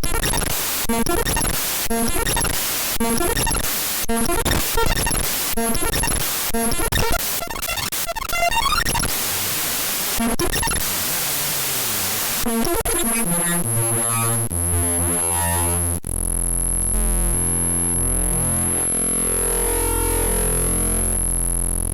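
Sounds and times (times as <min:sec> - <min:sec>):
choppy digital noise: 0:00.0 - 0:18.6.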